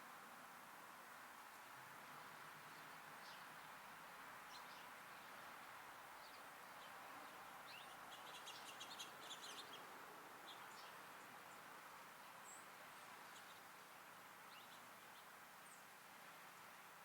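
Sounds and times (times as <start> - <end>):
outdoor background hiss: 0.0 - 17.0
songbirds chirping: 1.5 - 17.0.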